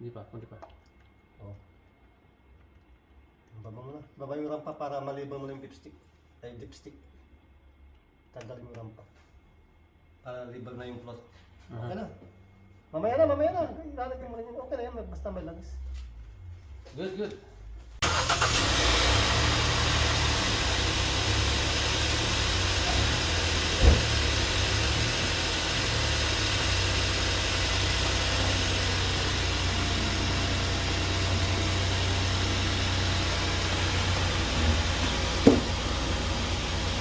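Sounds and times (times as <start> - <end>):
car engine idling: 18.0 - 37.0
sharp knocks: 35.4 - 35.7.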